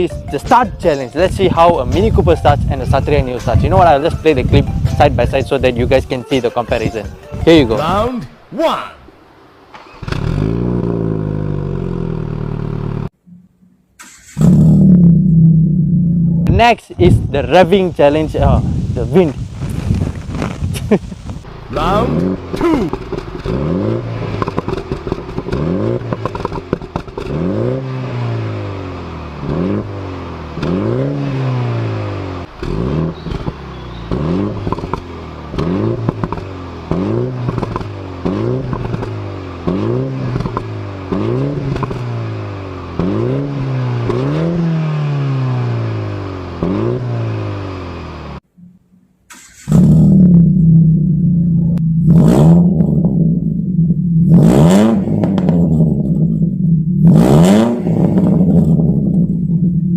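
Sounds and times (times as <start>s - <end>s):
car engine revving: 9.6s - 13.2s, 14.0s - 16.5s, 21.3s - 48.6s, 49.3s - 59.9s
loud low exhaust drone: 49.7s - 59.9s.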